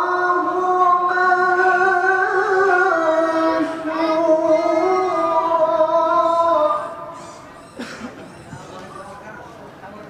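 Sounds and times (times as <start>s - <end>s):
high voice reciting melodically: 0.0s - 7.4s.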